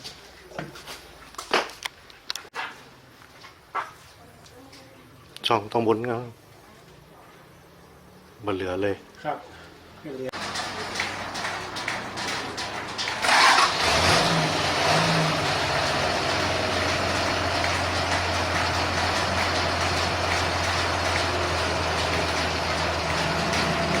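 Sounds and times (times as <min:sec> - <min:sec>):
engine starting and idling: 0:10.3 - 0:24.0.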